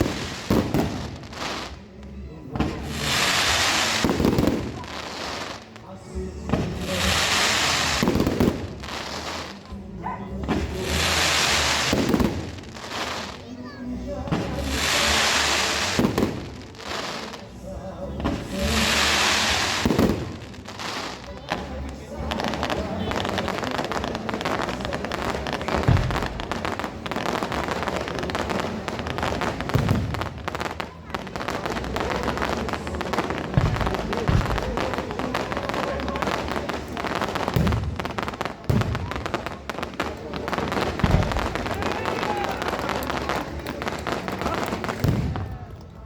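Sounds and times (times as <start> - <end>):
fireworks hissing: 0.0 - 45.7
fireworks bangs: 0.0 - 46.0.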